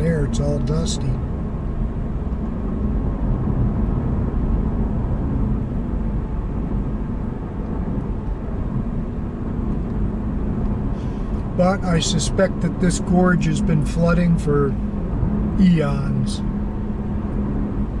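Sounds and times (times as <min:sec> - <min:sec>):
road noise inside moving car: 0:00.0 - 0:18.0.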